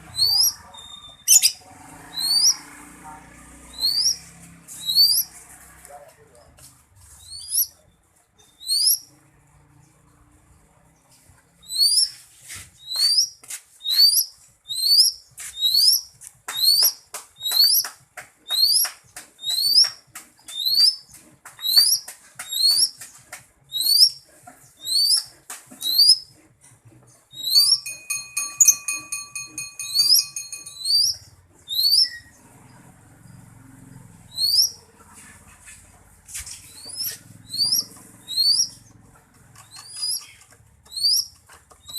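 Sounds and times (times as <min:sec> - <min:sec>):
bird whistling: 0:00.1 - 0:01.6, 0:03.8 - 0:04.2, 0:27.3 - 0:28.9, 0:30.0 - 0:32.3, 0:34.3 - 0:34.8, 0:36.7 - 0:38.8, 0:39.8 - 0:41.3
bird trilling: 0:00.1 - 0:02.6, 0:03.7 - 0:05.3, 0:27.3 - 0:32.3, 0:34.3 - 0:34.8, 0:36.7 - 0:38.8, 0:39.6 - 0:41.9.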